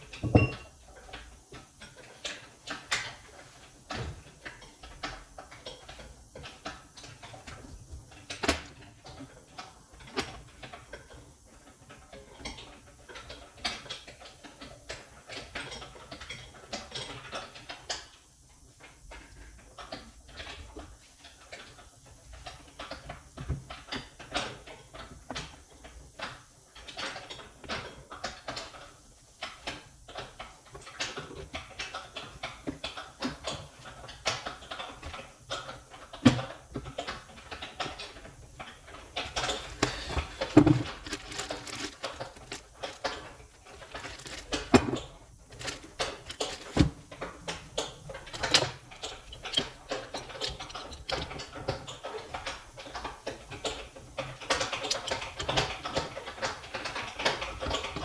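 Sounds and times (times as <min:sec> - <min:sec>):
tools clicking and knocking: 0:00.2 - 0:00.7, 0:39.4 - 0:52.0.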